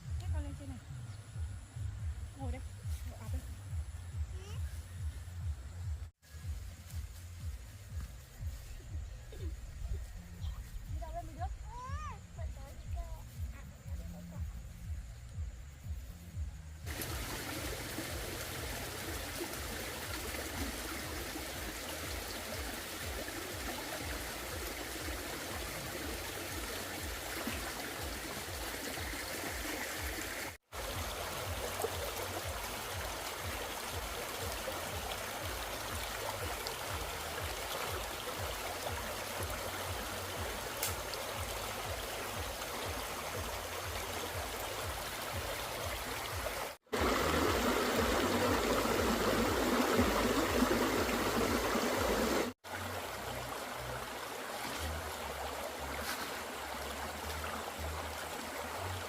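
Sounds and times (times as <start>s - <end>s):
running water rushing: 16.6s - 59.0s.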